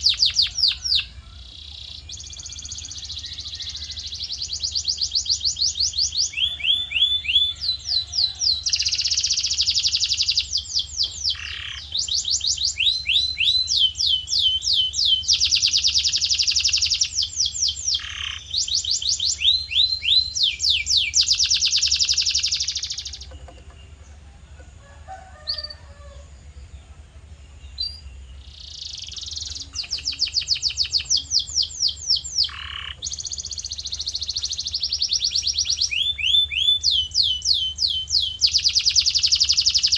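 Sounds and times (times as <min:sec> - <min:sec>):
canary singing: 0:00.0 - 0:39.9
steady low hum: 0:22.2 - 0:35.7.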